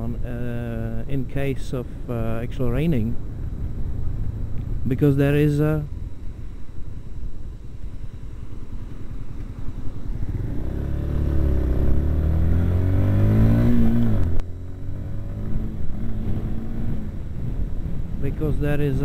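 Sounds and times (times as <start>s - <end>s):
wind and road noise: 0.0s - 19.0s
motorcycle engine accelerating: 2.7s - 19.0s.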